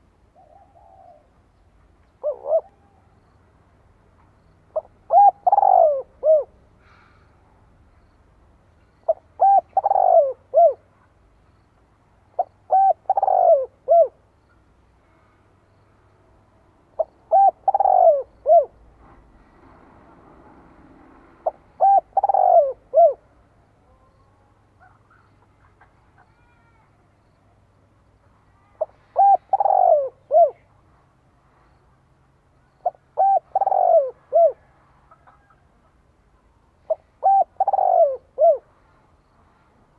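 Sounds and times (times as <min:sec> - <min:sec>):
dove cooing: 0:00.4 - 0:01.4, 0:02.2 - 0:03.2, 0:04.7 - 0:06.6, 0:09.0 - 0:10.9, 0:12.4 - 0:14.2, 0:17.0 - 0:18.8, 0:21.3 - 0:23.2, 0:28.7 - 0:30.7, 0:32.8 - 0:35.6, 0:36.8 - 0:38.7.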